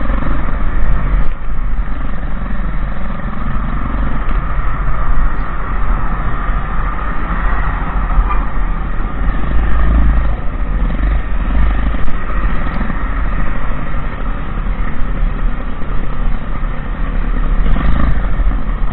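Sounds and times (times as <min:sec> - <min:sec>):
motorbike engine rumbling: 0:00.0 - 0:18.9.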